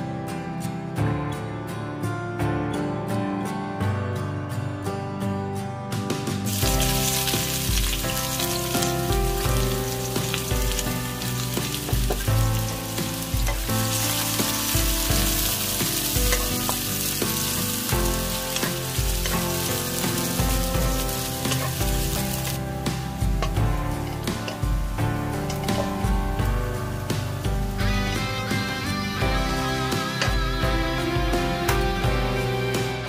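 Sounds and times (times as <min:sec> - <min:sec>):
shallots sizzling in hot oil: 0:06.5 - 0:32.4.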